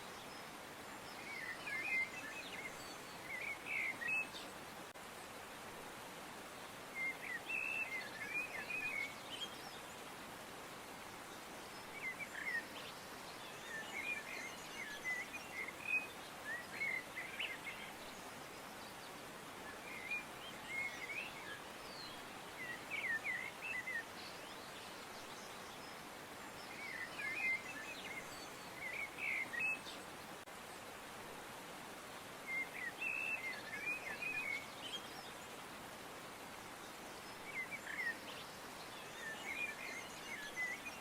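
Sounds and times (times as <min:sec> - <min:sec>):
steady background hiss: 0:00.0 - 0:41.0.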